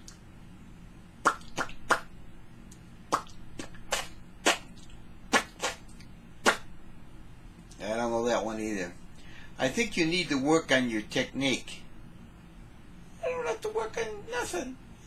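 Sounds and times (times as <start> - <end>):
comic fart noises: 3.1 - 4.7, 5.3 - 6.7.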